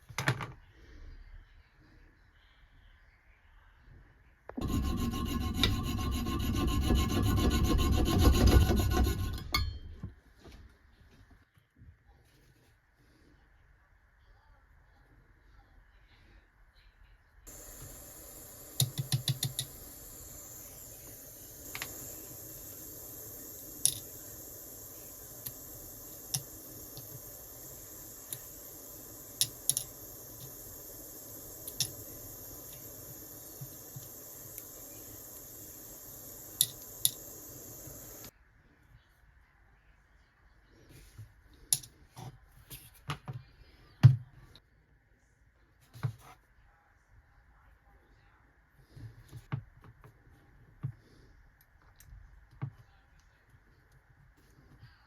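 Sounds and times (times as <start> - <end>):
faint steady hum: 0.6 - 45.8
faint hiss: 17.5 - 38.4.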